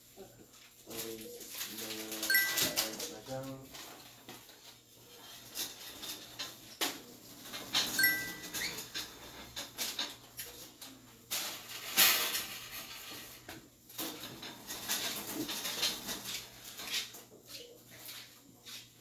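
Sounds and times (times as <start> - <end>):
rustling of paper and plastic packaging: 0.4 - 8.1.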